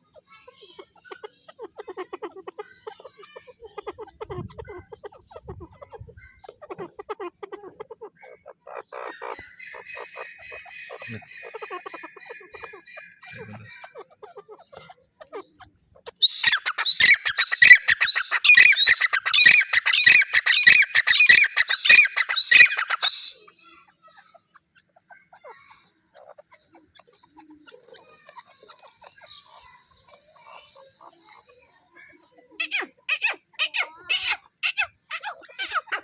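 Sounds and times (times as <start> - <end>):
francolins calling: 0.7 - 36.0.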